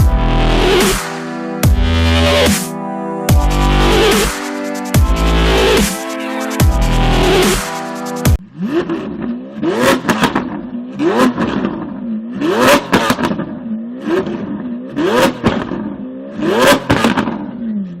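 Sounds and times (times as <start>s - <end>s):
engine revving: 0.0s - 2.7s, 3.3s - 18.0s.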